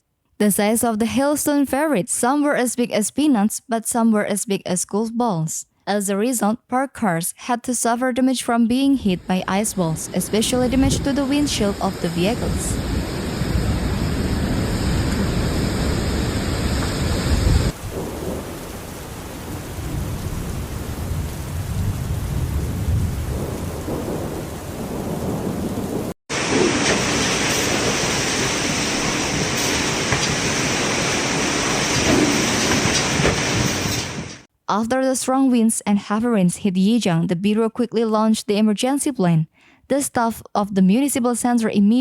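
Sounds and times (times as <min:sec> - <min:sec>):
heavy rain: 0:09.9 - 0:34.5.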